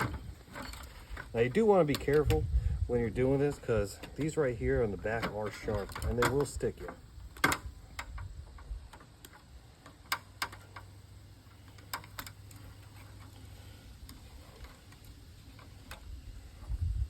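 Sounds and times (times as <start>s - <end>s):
light clicks and taps of parts: 5.1s - 16.1s.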